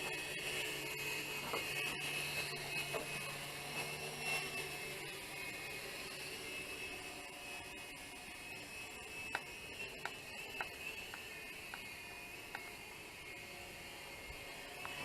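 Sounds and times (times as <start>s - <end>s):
rc helicopter high whine: 0.0s - 15.0s.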